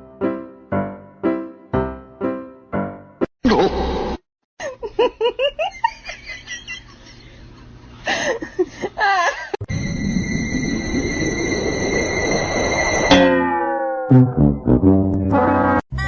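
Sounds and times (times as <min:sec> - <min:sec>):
person laughing: 0:03.4 - 0:04.0, 0:04.6 - 0:09.6.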